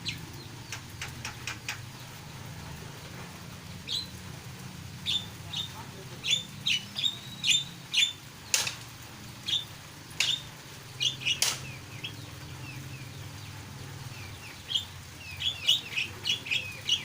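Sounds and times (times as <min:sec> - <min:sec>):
starling calling: 0:00.0 - 0:02.3, 0:03.8 - 0:04.2, 0:05.0 - 0:17.0
loud sharp sounds: 0:11.2 - 0:12.0.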